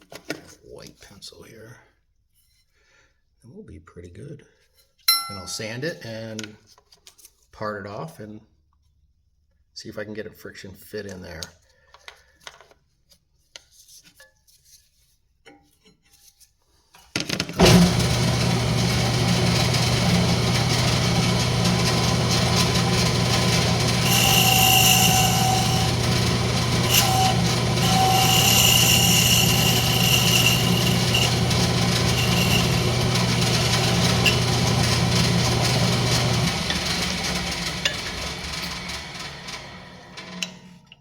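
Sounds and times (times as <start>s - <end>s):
tool cutting spinning wood: 17.5s - 40.5s
wood lathe motor humming: 17.6s - 40.5s.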